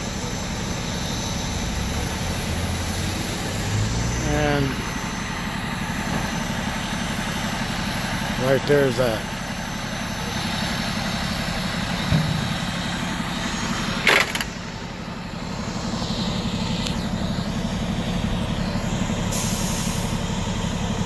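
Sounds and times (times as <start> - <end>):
vehicle engine idling: 0.0 - 21.0
burst of hiss: 19.3 - 20.2.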